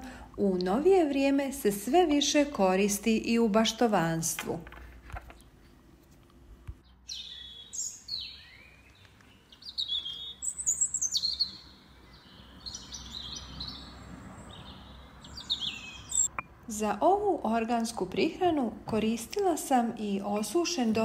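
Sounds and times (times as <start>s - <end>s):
songbird chirping and trilling: 6.8s - 16.4s.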